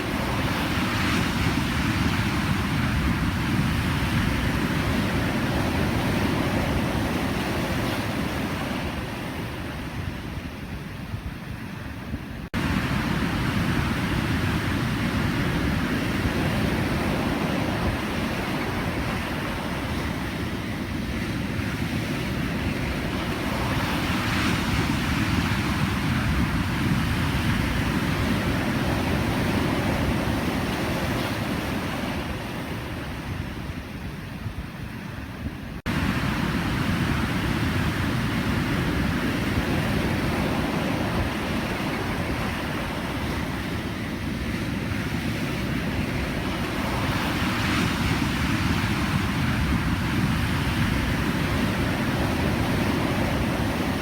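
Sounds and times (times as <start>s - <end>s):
ocean surf breaking: 12.6s - 33.8s, 35.8s - 54.0s.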